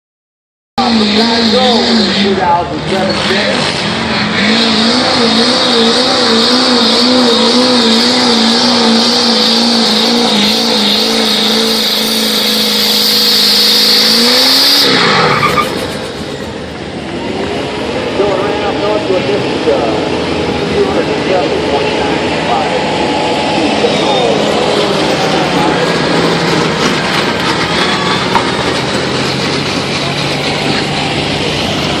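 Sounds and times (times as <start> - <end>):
spinning tires hissing: 0.8 - 32.0
truck engine at high revs: 0.8 - 32.0
tyres spinning: 23.0 - 32.0.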